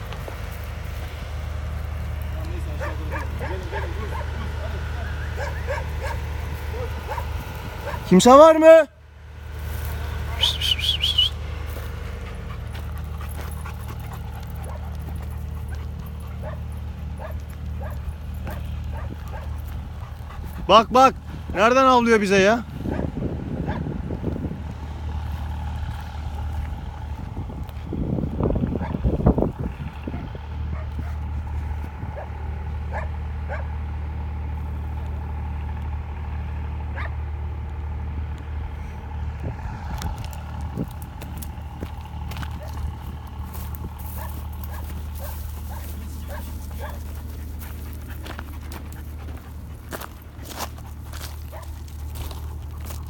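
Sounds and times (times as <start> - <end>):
dog yipping: 2.8 - 8.1, 15.6 - 16.6, 17.2 - 19.6, 32.9 - 33.7, 44.2 - 47.0
dog yip: 5.1 - 8.1, 32.9 - 33.7
dog panting and whimpering: 12.0 - 21.5, 44.2 - 52.7
low rumble: 22.6 - 33.3, 34.2 - 53.0.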